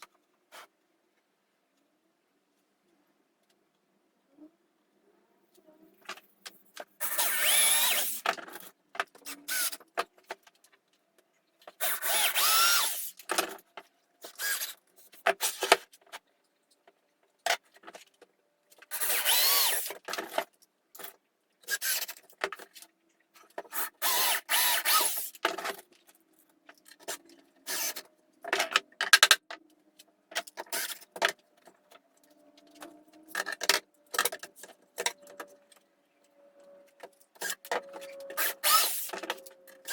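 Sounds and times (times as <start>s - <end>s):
power drill running: 7.0s - 8.2s, 11.8s - 13.1s, 18.9s - 20.0s, 24.0s - 25.4s, 27.7s - 28.0s, 38.4s - 39.2s.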